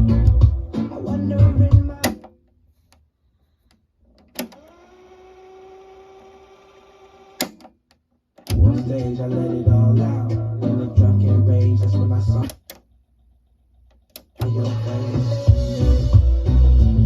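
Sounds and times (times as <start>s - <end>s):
cassette deck clicks: 1.9s - 2.4s, 4.2s - 4.7s, 7.4s - 8.9s
tape winding whir: 4.2s - 7.7s.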